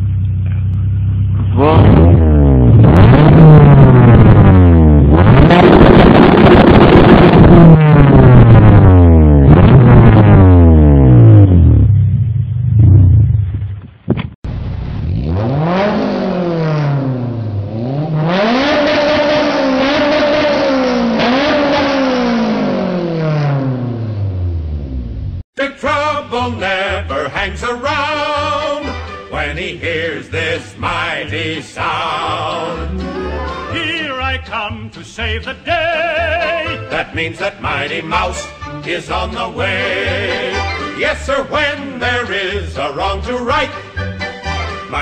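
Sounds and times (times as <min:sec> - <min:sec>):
car engine revving: 0:00.0 - 0:13.7, 0:14.7 - 0:25.4.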